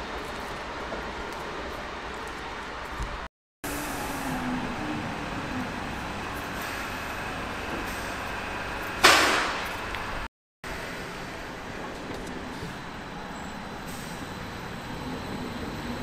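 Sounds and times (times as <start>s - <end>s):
train rolling slowly: 0.0s - 16.0s
loud hiss of air brakes: 7.8s - 8.3s, 13.8s - 14.3s.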